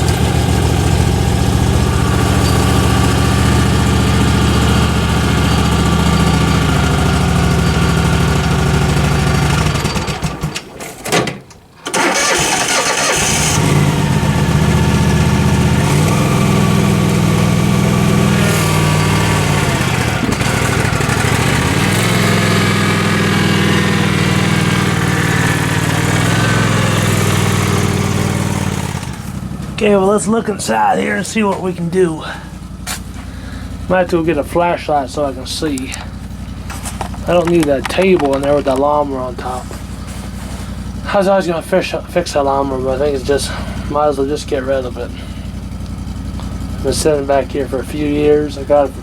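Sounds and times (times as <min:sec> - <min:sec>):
engine running: 0:00.0 - 0:10.9, 0:11.8 - 0:49.0.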